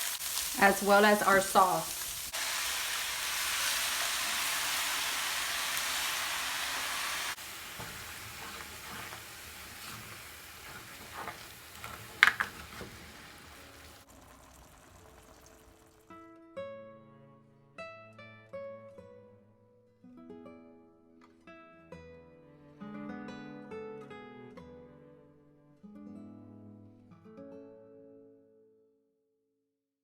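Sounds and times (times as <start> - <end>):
food sizzling in a frying pan: 0.0 - 16.2.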